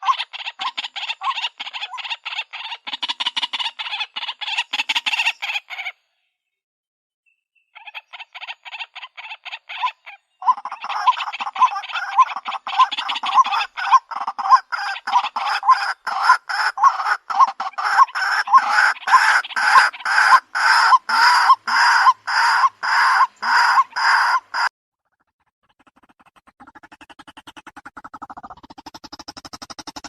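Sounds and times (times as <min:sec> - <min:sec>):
waterhen harsh calls: 0:00.0 - 0:06.0, 0:07.8 - 0:24.7.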